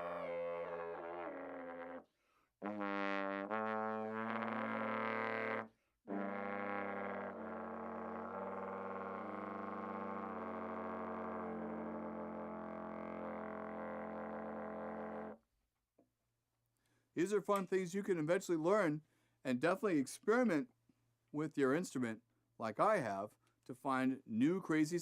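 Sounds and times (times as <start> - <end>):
trombone multiphonics buzzing: 2.6 - 15.4.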